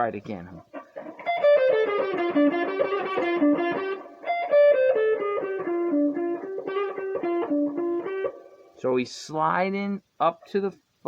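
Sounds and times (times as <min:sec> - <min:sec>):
electric guitar blues lick: 0:00.6 - 0:08.8.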